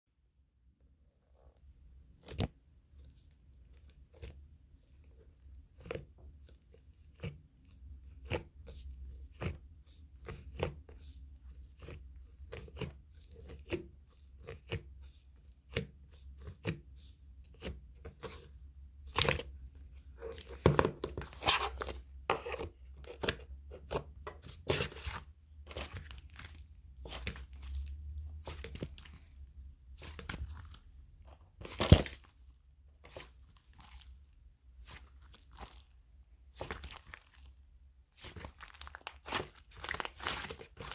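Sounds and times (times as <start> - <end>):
slime squished by hand: 22.7 - 40.9.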